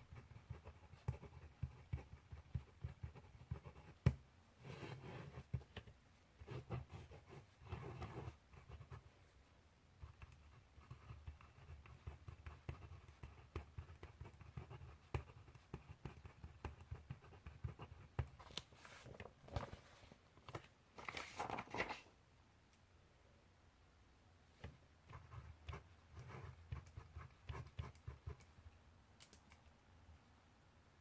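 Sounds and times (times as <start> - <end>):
pen scratching on paper: 0.1 - 9.2, 10.0 - 18.4, 25.0 - 28.5
paper rustle: 18.4 - 22.1.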